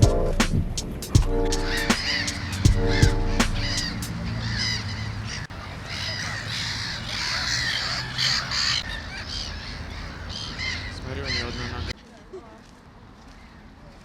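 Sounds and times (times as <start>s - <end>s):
crows cawing: 1.6s - 11.9s.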